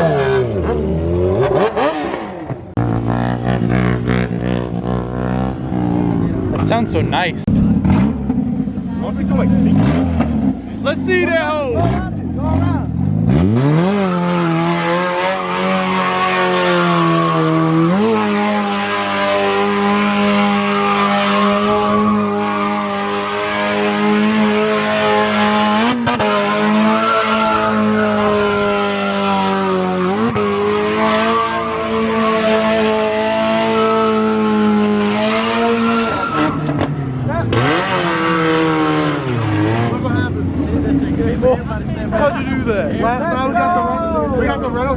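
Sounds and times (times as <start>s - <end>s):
car engine revving hard: 0.0s - 8.6s, 9.2s - 10.8s, 11.4s - 40.3s
tyres squealing on pavement: 18.5s - 33.0s, 33.6s - 34.9s, 35.6s - 39.7s.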